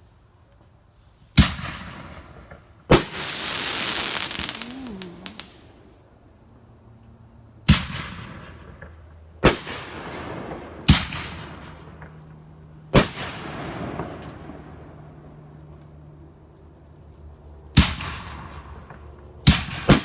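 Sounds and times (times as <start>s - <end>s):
fireworks booming: 2.9s - 5.9s.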